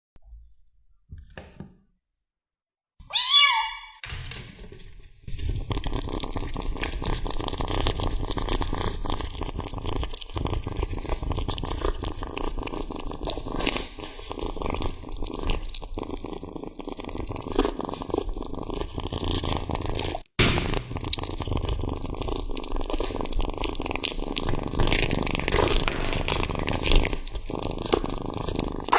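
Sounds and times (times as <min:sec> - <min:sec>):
cat meowing: 0:03.0 - 0:04.0
cat chewing raw meat: 0:05.5 - 0:28.9.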